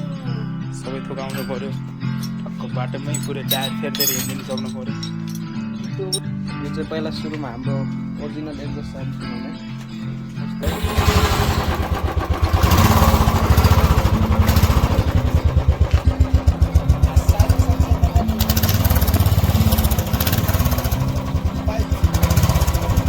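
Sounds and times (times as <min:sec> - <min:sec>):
motorcycle engine pulsing: 0:10.6 - 0:23.0.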